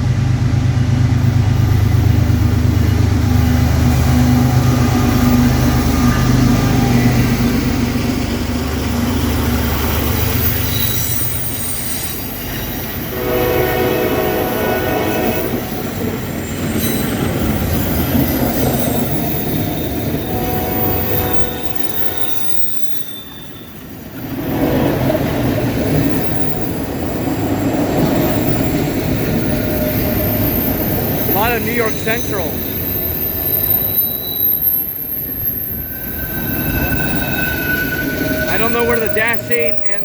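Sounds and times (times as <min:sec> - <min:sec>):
train wheels on rail: 0:00.0 - 0:40.0
steel wheel squeals: 0:09.4 - 0:24.4, 0:25.7 - 0:40.0.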